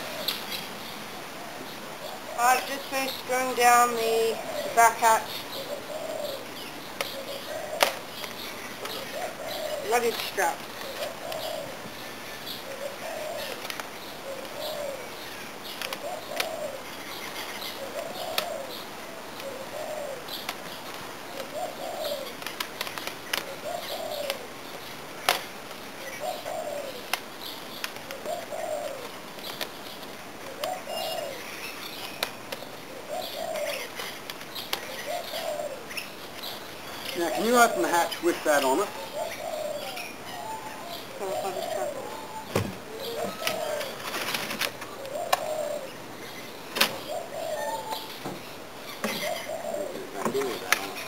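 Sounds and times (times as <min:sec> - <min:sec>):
birds chirping faintly: 0:00.0 - 0:51.0
bird cooing: 0:03.8 - 0:08.1, 0:08.8 - 0:11.8, 0:12.6 - 0:20.4, 0:21.3 - 0:22.4, 0:23.5 - 0:24.6, 0:26.0 - 0:27.1, 0:28.1 - 0:29.2, 0:30.5 - 0:31.7, 0:32.9 - 0:36.0, 0:36.9 - 0:51.0.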